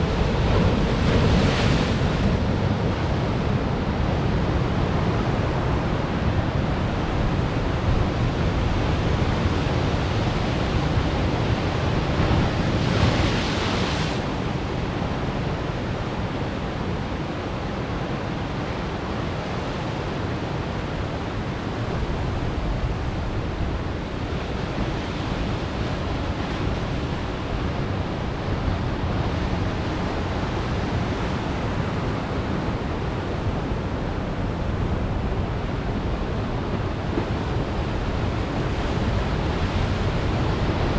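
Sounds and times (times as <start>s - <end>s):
waves crashing on rocks: 0.0s - 5.8s, 8.4s - 15.9s.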